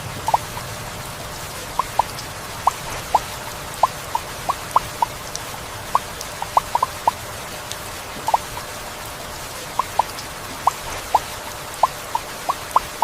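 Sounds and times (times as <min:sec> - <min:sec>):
heavy rain hiss: 0:00.0 - 0:13.0.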